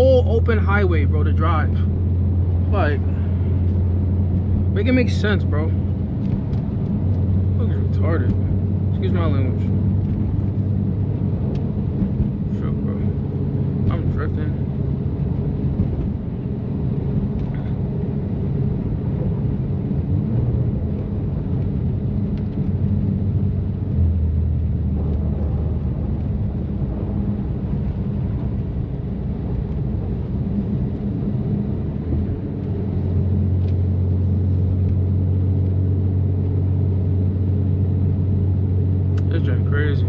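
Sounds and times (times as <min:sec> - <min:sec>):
car exhaust drone from inside cabin: 0:00.0 - 0:40.0
tyre and road noise: 0:00.0 - 0:40.0.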